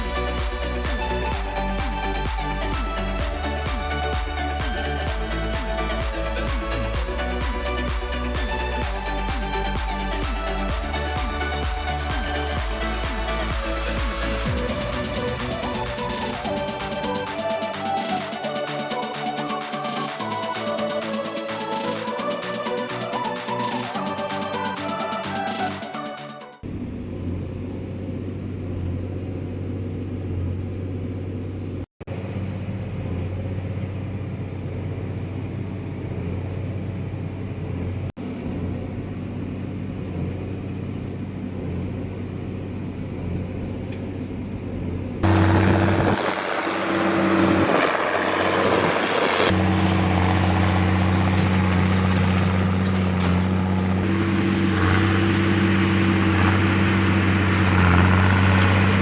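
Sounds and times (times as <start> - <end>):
tractor engine humming: 0.0 - 59.0
broad rushing noise: 45.2 - 59.0.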